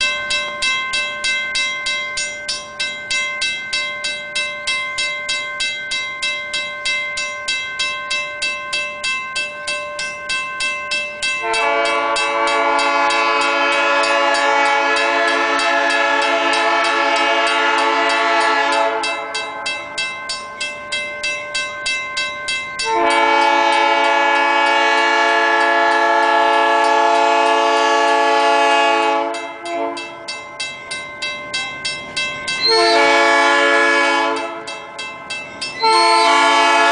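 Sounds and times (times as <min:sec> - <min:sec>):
bell clanging: 0:00.0 - 0:23.9, 0:29.2 - 0:36.9
locomotive air horn blasts: 0:11.4 - 0:19.3, 0:22.8 - 0:30.2, 0:32.6 - 0:34.7, 0:35.8 - 0:36.9.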